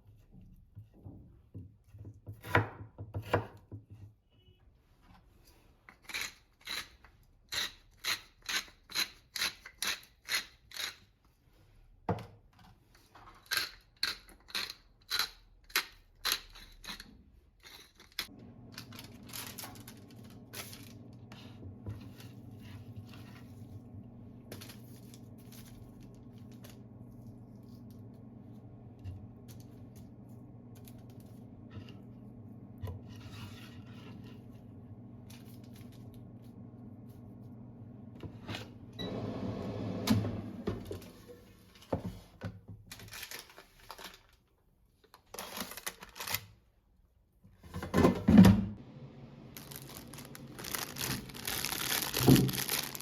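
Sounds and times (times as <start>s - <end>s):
knife chopping on cutting board: 2.3s - 3.7s.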